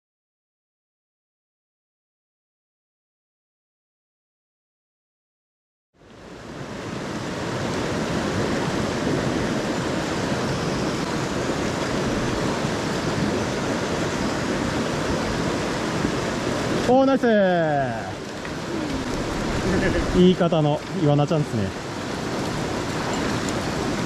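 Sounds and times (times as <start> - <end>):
stream rushing over rocks: 6.0 - 24.0.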